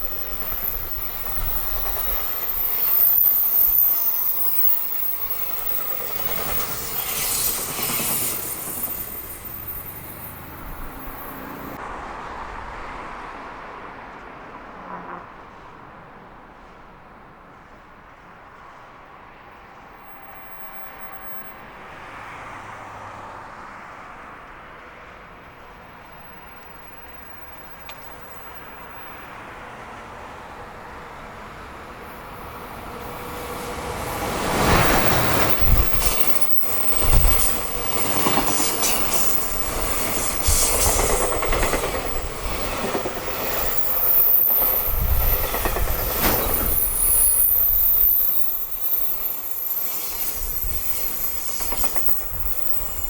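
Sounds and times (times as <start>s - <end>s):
train rumble: 0.0s - 53.0s
train wheels clattering over rail joints: 34.1s - 53.0s.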